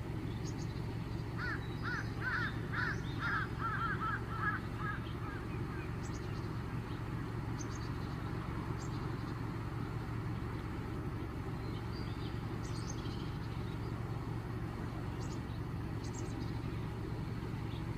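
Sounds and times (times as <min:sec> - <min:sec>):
distant traffic rumble: 0:00.0 - 0:17.9.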